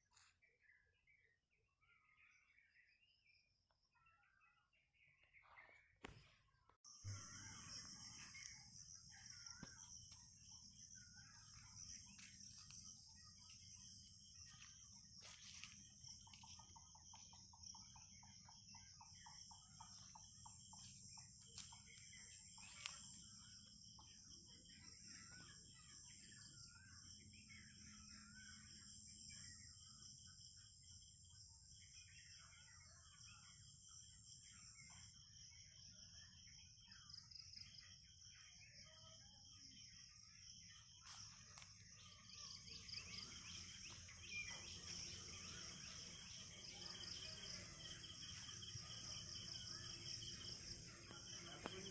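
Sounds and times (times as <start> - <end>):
birds calling: 40.8 - 51.9.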